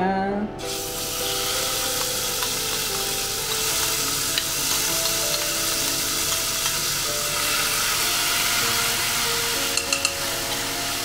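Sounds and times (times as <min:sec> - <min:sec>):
spice paste sizzling in hot oil: 0:00.6 - 0:11.0.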